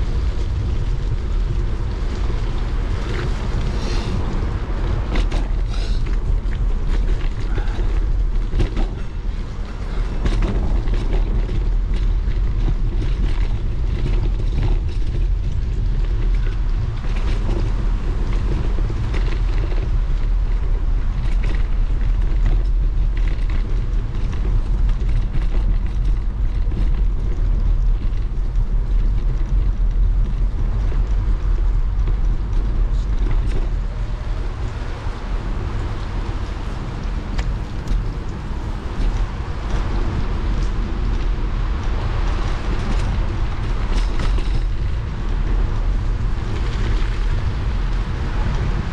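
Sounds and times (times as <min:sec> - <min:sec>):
bike rattles and clicks: 0:00.0 - 0:48.9
wind on microphone: 0:00.0 - 0:48.9
tyres hissing on wet road: 0:02.6 - 0:06.3.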